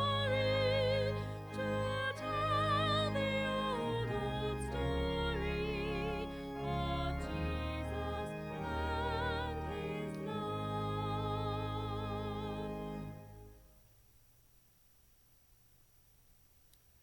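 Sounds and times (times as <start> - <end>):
person singing with vibrato: 0.0 - 13.0
held keyboard accompaniment: 0.0 - 13.7.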